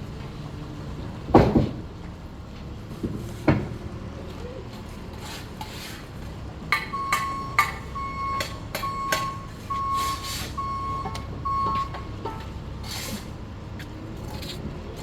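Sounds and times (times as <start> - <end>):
reversing alarm beeping: 6.8 - 12.4.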